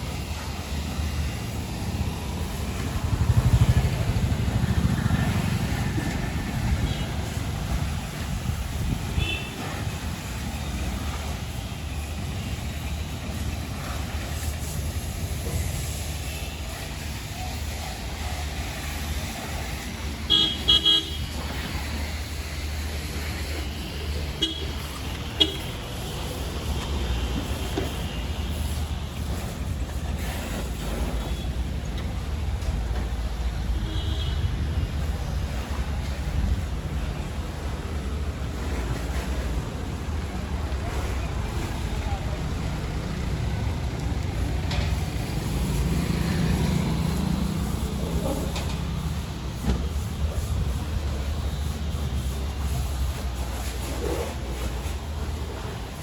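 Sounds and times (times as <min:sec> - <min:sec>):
two-stroke motorcycle engine running: 0:01.6 - 0:08.9
vehicle horn beeps: 0:09.1 - 0:09.8, 0:20.3 - 0:21.3, 0:24.4 - 0:24.8, 0:25.4 - 0:25.7.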